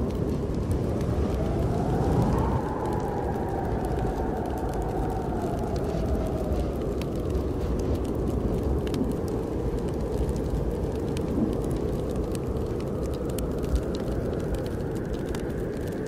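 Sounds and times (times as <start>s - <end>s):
howling storm wind: 0.0s - 16.0s
wood fire crackling: 0.0s - 16.0s.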